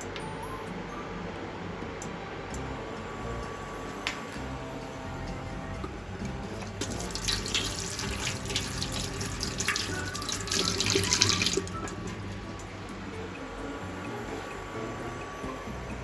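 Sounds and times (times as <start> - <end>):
water splashing: 5.2 - 15.3
tap water running into sink: 6.3 - 13.0.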